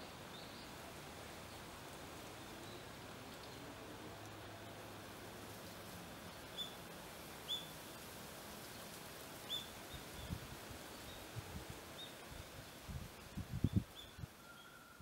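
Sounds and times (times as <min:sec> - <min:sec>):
faint outdoor hiss: 0:00.0 - 0:15.0
small bird chirping: 0:06.3 - 0:06.8, 0:07.5 - 0:07.7, 0:09.5 - 0:10.4.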